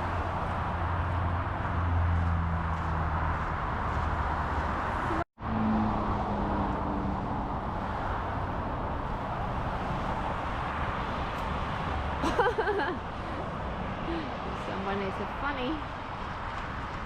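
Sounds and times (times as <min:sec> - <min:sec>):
road traffic noise: 0:00.0 - 0:17.0
vehicle engine hum: 0:00.0 - 0:17.0.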